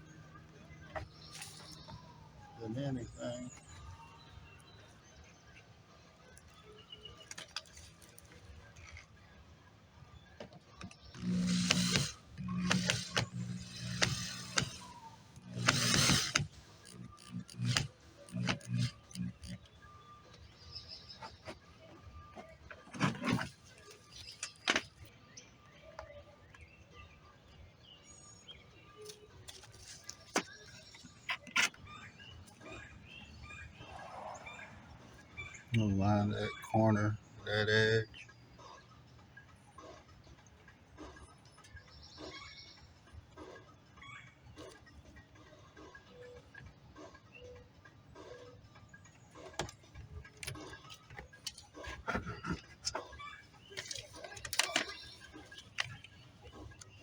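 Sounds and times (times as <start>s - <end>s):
birds chirping faintly: 0.0s - 57.0s
hands handling parts and tools: 10.4s - 19.6s, 22.3s - 25.1s, 49.5s - 57.0s.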